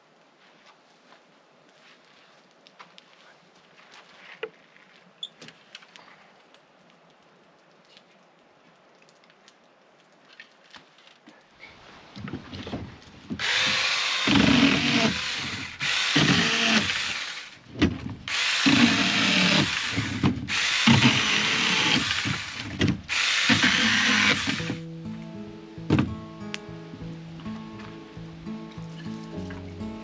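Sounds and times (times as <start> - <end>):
power tool motor bursts: 13.4 - 17.6, 18.3 - 24.8.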